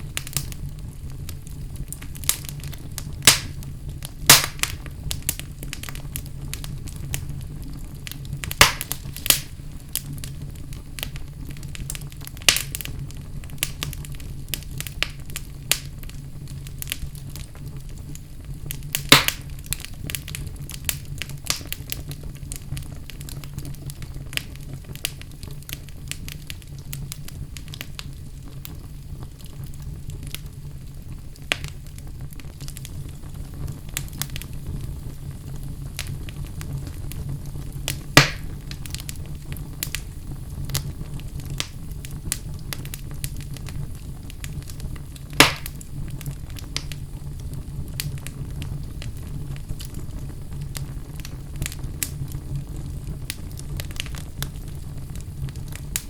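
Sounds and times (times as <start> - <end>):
fire crackling in fireplace: 0.0 - 56.0
loud sharp pops: 3.3 - 3.6, 4.3 - 4.8, 8.5 - 9.5, 19.0 - 19.4, 38.2 - 38.5, 45.4 - 45.8.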